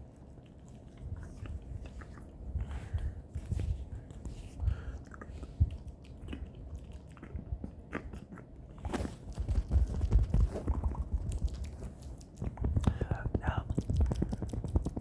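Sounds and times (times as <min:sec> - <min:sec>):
mouth clicks and smacks: 0:09.4 - 0:15.0.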